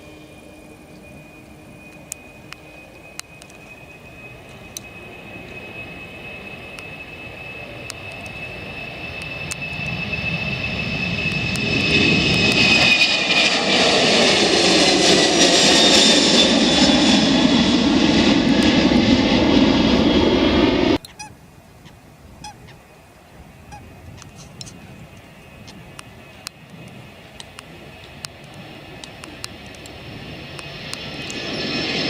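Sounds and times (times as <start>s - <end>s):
high engine whine: 0.0s - 32.0s
jet airliner taking off: 0.0s - 32.0s.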